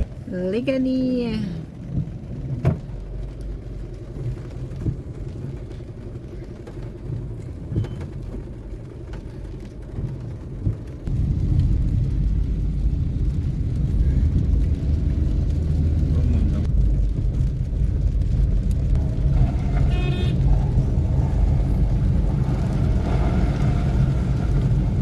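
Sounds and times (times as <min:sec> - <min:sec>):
motor vehicle rumble: 0:00.0 - 0:25.0.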